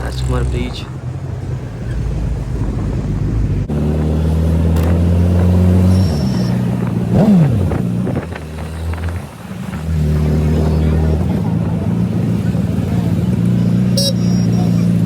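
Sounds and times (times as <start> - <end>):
motorcycle exhaust drone: 1.3 - 15.0
engine rev blip: 5.6 - 7.6, 13.8 - 15.0.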